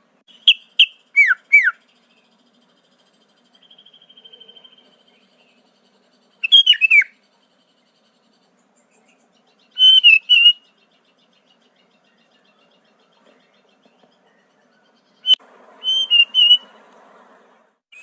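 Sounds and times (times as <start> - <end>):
bird singing whistled phrases: 0.3 - 1.9, 3.6 - 4.9, 6.4 - 7.2, 9.7 - 10.7, 15.2 - 16.7.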